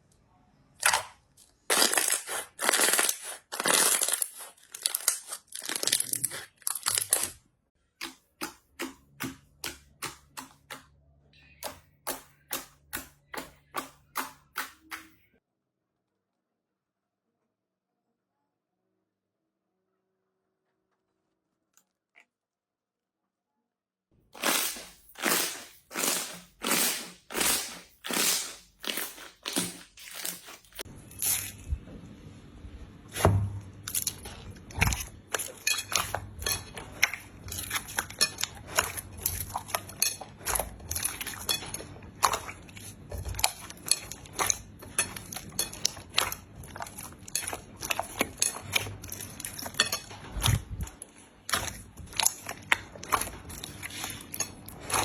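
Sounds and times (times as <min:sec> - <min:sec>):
slime crackling and popping: 0:00.8 - 0:07.4, 0:24.4 - 0:31.4
slime strokes: 0:01.7 - 0:07.3, 0:24.4 - 0:31.6.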